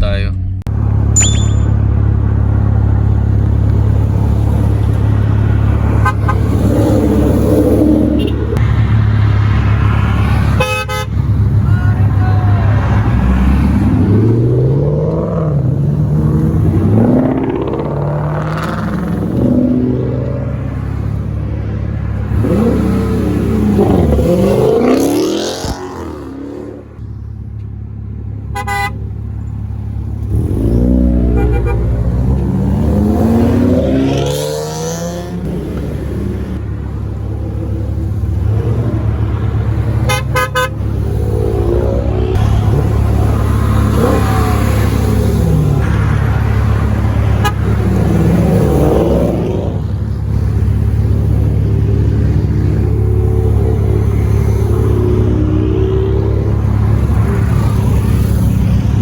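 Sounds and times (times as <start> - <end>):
car engines revving: 0.0 - 59.0
car horn toots: 5.9 - 6.5, 8.1 - 8.6, 10.5 - 12.7, 28.5 - 29.0, 31.2 - 32.0, 40.0 - 40.9, 47.3 - 47.8.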